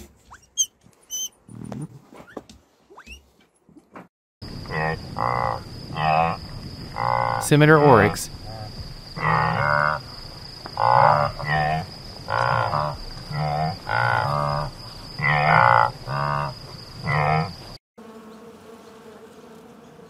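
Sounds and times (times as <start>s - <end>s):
oryx low calls: 4.6s - 17.6s
honeybee buzzing: 18.0s - 20.0s.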